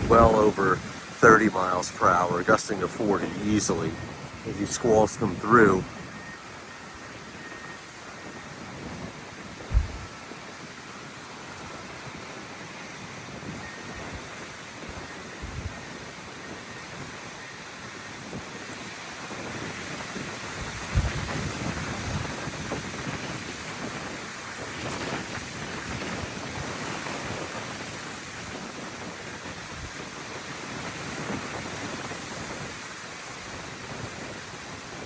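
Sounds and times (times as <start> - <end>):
gusty wind buffeting microphone: 0.0 - 35.0
low thump of wind: 5.8 - 10.8, 19.4 - 24.0.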